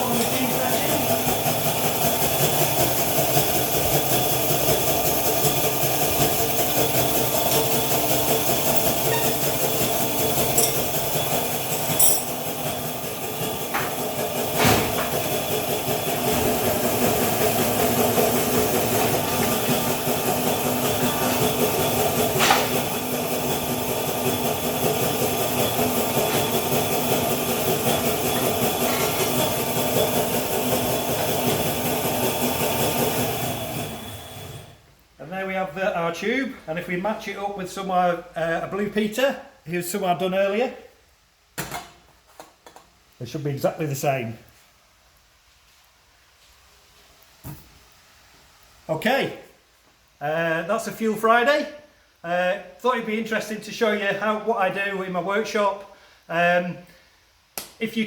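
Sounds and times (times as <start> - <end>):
tube bending machine running: 0.0 - 34.7.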